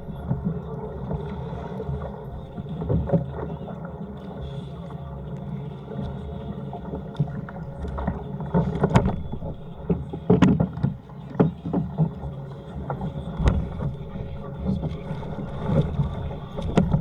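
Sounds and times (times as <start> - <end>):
water: 0.0 - 17.0
wind rumble: 6.8 - 11.0
knocks and thumps on kayak: 6.9 - 17.0.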